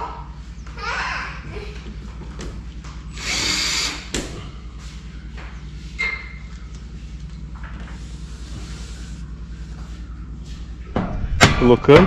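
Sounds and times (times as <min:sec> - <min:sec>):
steady low hum: 0:00.0 - 0:12.0
power drill whirring: 0:03.1 - 0:04.1.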